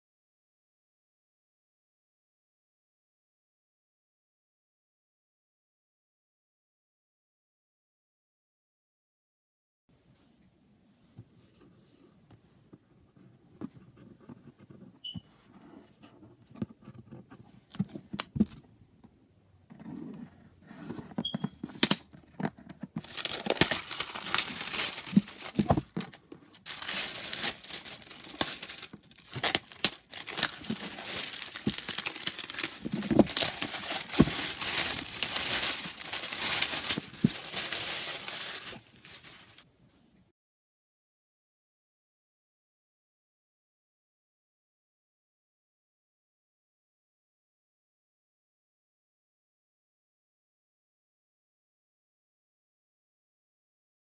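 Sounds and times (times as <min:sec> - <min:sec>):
wrapper crinkling and tearing: 0:21.7 - 0:22.0, 0:23.0 - 0:39.6.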